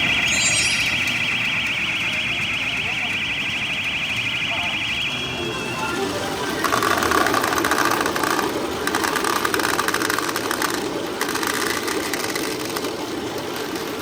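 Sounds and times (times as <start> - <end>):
machines humming: 0.0 - 14.0
rapid rattle of steel balls: 6.6 - 14.0.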